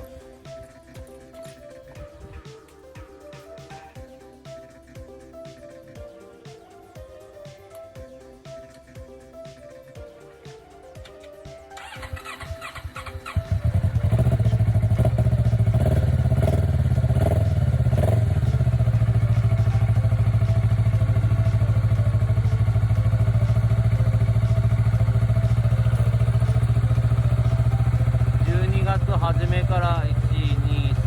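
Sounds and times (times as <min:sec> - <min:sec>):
motorcycle engine idling: 0:11.8 - 0:31.0.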